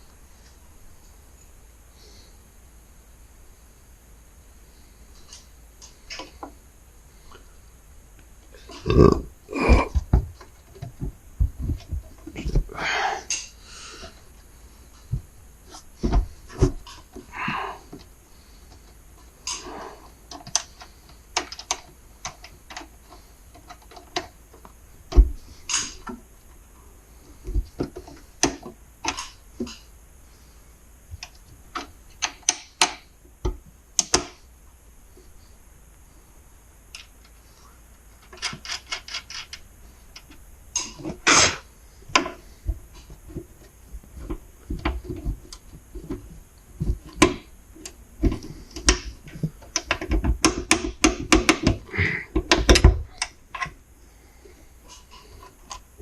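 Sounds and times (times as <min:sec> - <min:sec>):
metal hardware clicking and knocking: 0:48.2 - 0:53.7.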